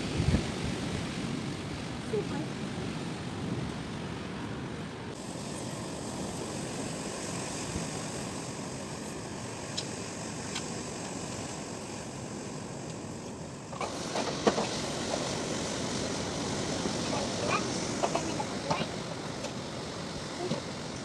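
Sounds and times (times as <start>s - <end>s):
strong wind blowing: 0.0s - 5.1s.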